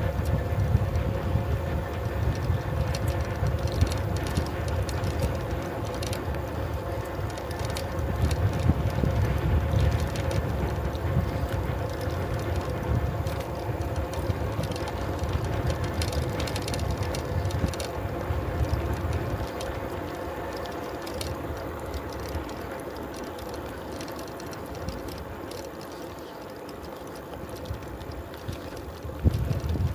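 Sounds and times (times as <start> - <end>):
bicycle freewheel ticking: 0.0 - 29.9
road and wind rumble: 0.0 - 29.9.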